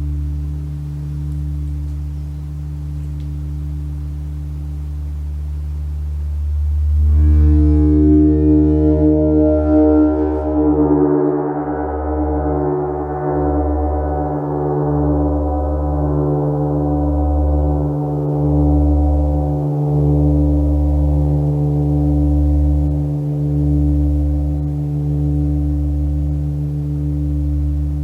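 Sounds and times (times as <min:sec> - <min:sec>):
gong ringing with deep drone: 0:06.4 - 0:28.0.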